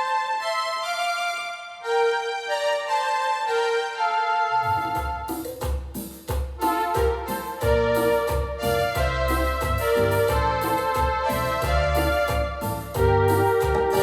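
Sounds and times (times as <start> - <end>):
synthesizer chords over bass line: 3.8 - 5.5, 6.7 - 14.0.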